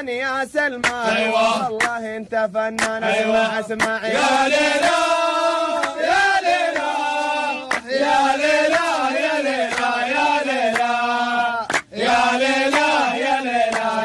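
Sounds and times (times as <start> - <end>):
man chanting a football chant: 0.0 - 5.0.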